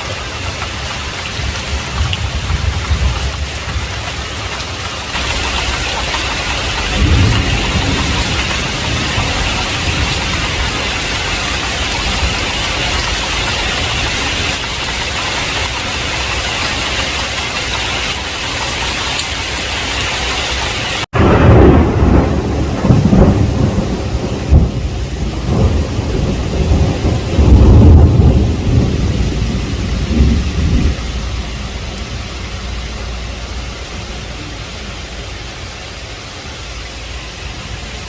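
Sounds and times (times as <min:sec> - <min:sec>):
heavy rain: 0:00.0 - 0:38.0
rolling thunder with cracks: 0:01.2 - 0:04.2, 0:05.1 - 0:15.0, 0:21.2 - 0:32.3.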